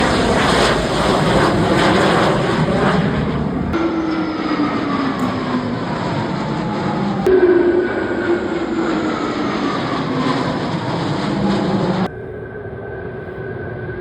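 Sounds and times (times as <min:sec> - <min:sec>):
fighter jet engines roaring: 0:00.0 - 0:14.0
jet engine whine falling in pitch: 0:00.0 - 0:14.0.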